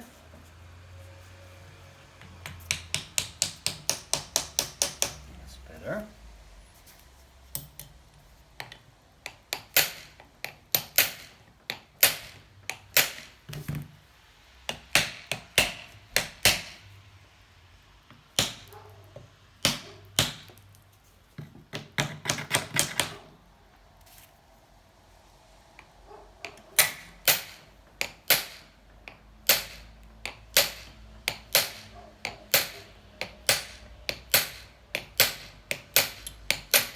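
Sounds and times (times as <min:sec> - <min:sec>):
sharp metal taps and knocks: 0:02.2 - 0:05.3, 0:08.6 - 0:13.8, 0:14.7 - 0:16.8, 0:21.4 - 0:23.2, 0:26.4 - 0:36.9.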